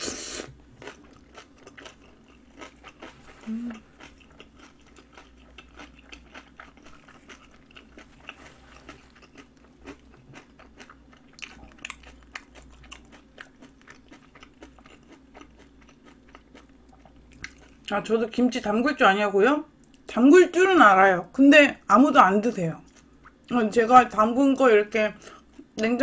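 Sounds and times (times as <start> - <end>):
person chewing crunchy food: 0.0 - 17.9.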